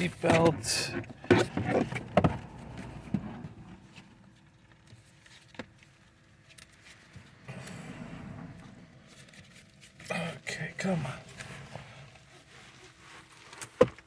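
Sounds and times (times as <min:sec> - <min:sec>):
soft steady whoosh: 0:07.2 - 0:12.7.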